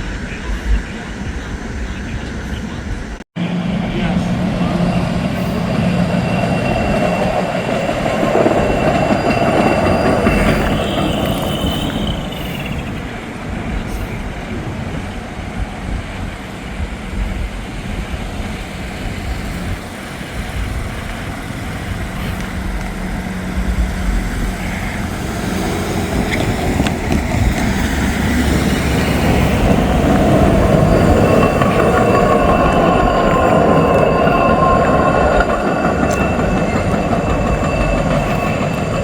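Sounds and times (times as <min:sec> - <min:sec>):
train rolling past on tracks: 0:00.0 - 0:39.0.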